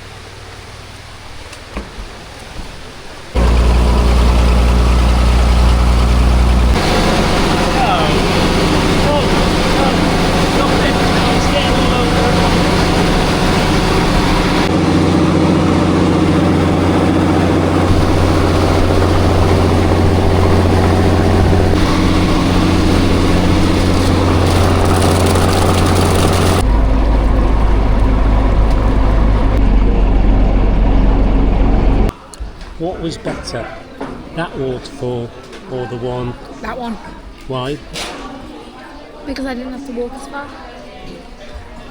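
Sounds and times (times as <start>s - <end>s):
motorboat engine running: 3.4s - 32.1s.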